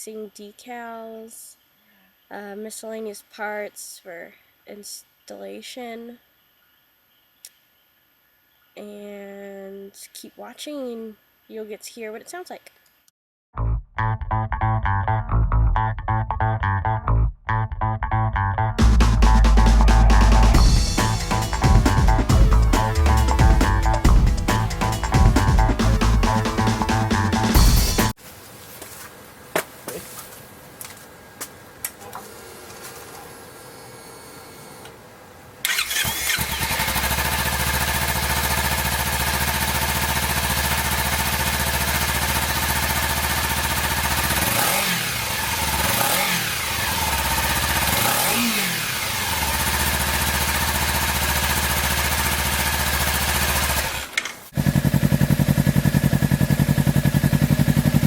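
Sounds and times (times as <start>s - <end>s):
faint clicks: 7.4s - 7.6s
motorcycle engine idling and blipping: 35.7s - 58.0s.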